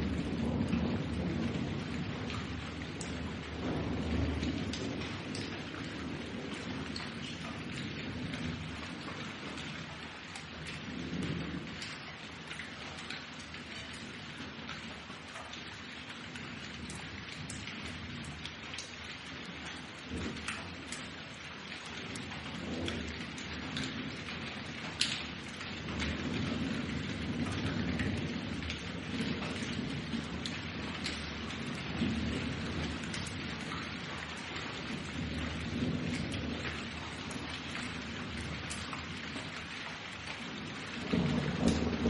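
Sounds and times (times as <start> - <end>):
thunder rolling: 0.0 - 9.7, 22.1 - 39.5, 40.7 - 42.0
close water drip: 0.0 - 42.0
heavy rain pattering: 0.0 - 42.0.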